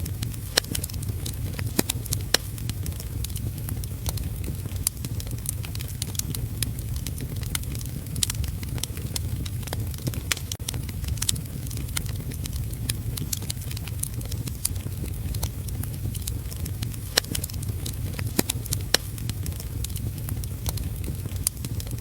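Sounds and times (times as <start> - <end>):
heavy rain rumble: 0.0 - 22.0
wood fire crackling: 0.0 - 22.0.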